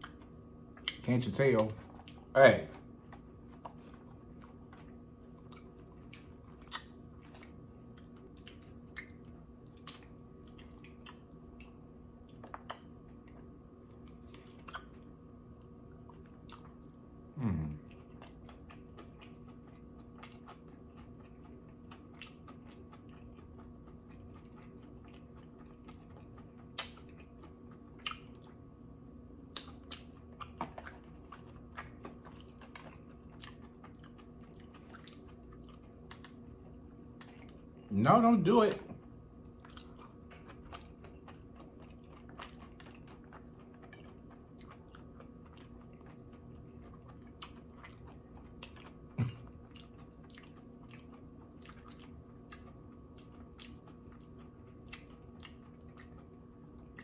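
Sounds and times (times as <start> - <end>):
chewing with soft crunches: 0.0 - 57.0
person humming mm: 17.3 - 17.8.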